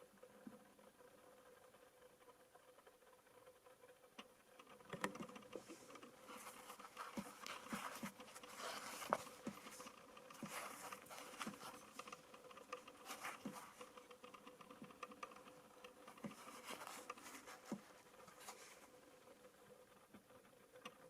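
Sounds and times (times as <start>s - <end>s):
faint steady hum: 0.0s - 21.0s
handling clicks and taps: 4.8s - 18.8s.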